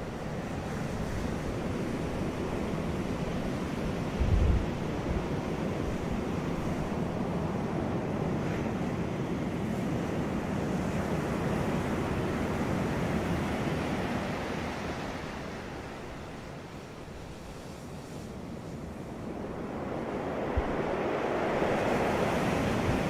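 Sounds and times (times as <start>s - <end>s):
sea waves washing onto beach: 0.0s - 23.0s.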